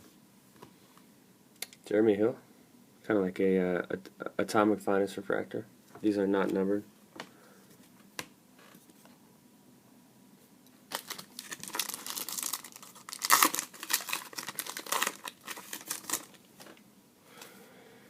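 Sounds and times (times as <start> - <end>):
card pack wrapper tearing and crinkling: 10.9 - 16.5.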